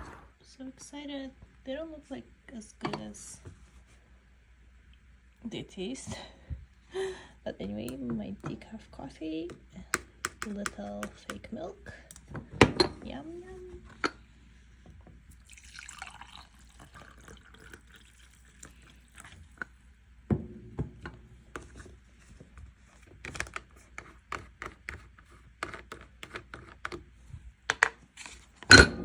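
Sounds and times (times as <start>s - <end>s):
mug clinks and knocks: 12.6s - 13.1s, 28.7s - 29.0s.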